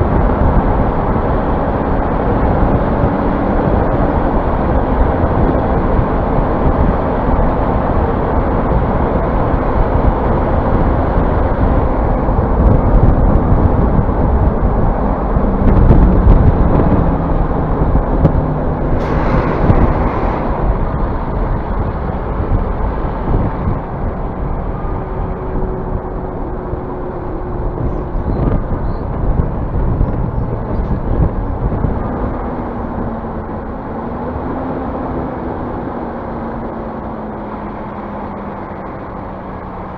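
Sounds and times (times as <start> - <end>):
bus engine and road noise: 0.0 - 39.9.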